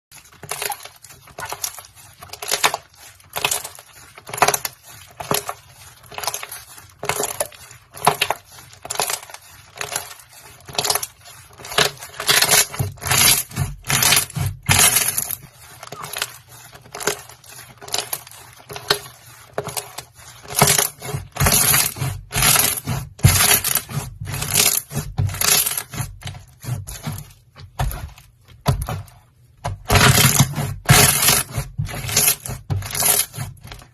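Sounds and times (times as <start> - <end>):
slime squelching and popping: 0.2 - 19.0.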